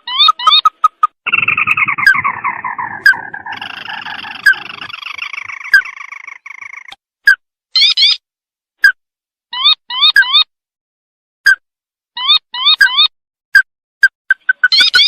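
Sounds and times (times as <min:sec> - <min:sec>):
bird trilling calls: 0:00.0 - 0:07.0, 0:14.3 - 0:15.0.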